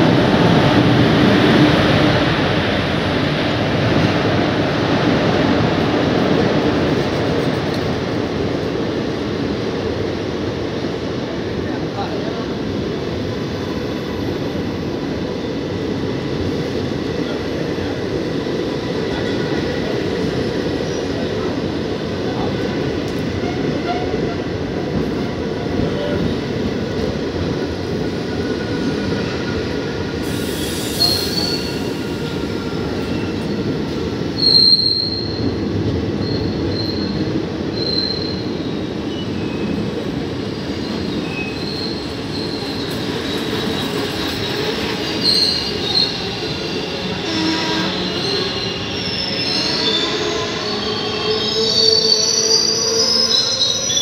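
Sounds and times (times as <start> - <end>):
train wheels rumbling on rails: 0.0 - 54.0
high-pitched wheel squeals: 34.4 - 35.4, 45.1 - 54.0.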